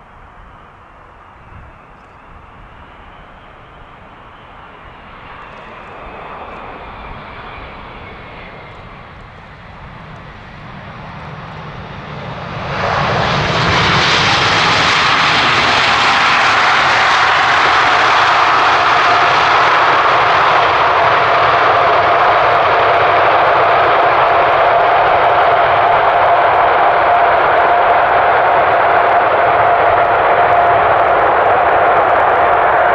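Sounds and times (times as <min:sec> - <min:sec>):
jet engines roaring: 0:00.0 - 0:32.9.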